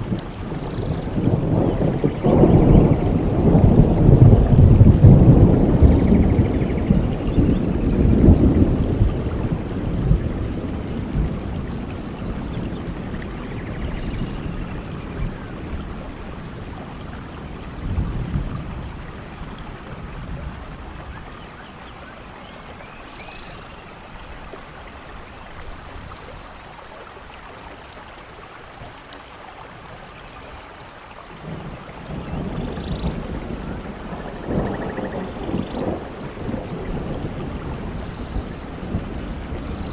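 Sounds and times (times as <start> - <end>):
rolling thunder: 0.0 - 21.3, 31.4 - 39.9
steady rainfall: 0.0 - 39.9.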